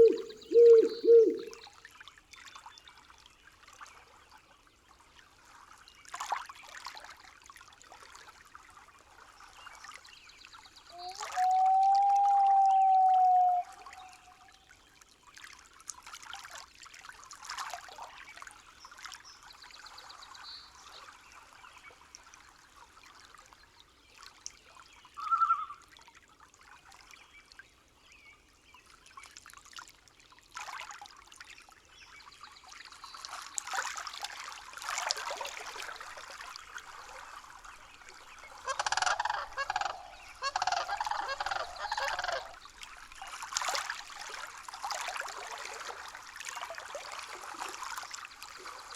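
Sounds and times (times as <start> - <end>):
bird calls: 0.0 - 1.6, 11.0 - 14.4, 25.2 - 25.8, 38.3 - 42.7
stream trickling: 0.0 - 48.9.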